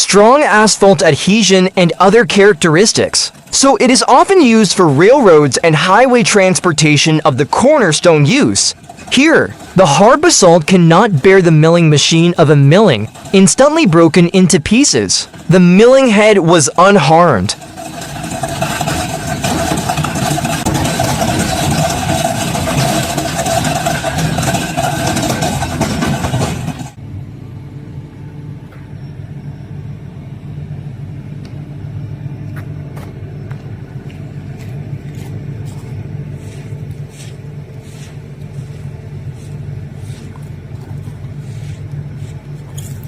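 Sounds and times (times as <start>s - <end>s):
excavator diesel engine running: 0.0s - 43.0s
drum cutter grinding into rock: 0.4s - 27.0s.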